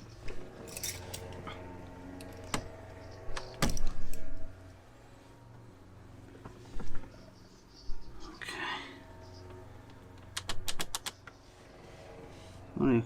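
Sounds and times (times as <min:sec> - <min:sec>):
tools clattering: 0:00.6 - 0:01.4.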